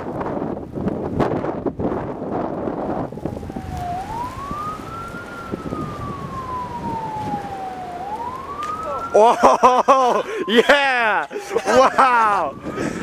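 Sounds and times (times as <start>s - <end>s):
wind buffeting microphone: 0.0s - 13.0s
siren wailing: 2.5s - 13.0s.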